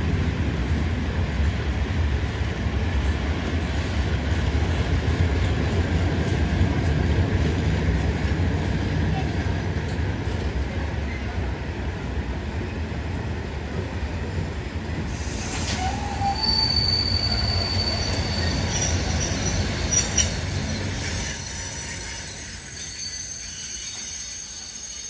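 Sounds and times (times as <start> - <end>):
high wheel squeal: 15.1 - 25.0.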